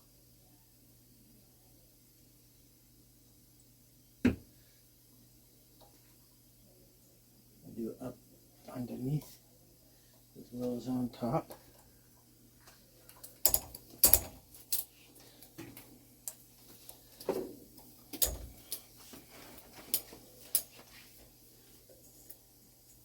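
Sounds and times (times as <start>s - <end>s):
metal spring clicking and tapping: 13.4s - 14.8s.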